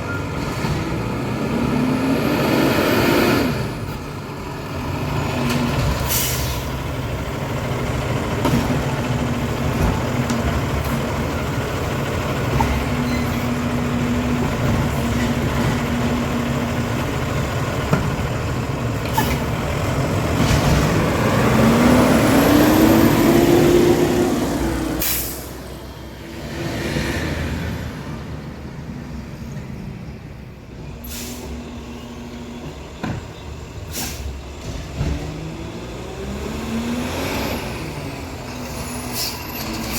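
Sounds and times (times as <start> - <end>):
garbage truck engine running: 2.9 - 26.2
air brakes hissing: 6.0 - 6.8, 25.0 - 25.6, 31.0 - 31.6, 33.8 - 34.4, 38.7 - 39.9.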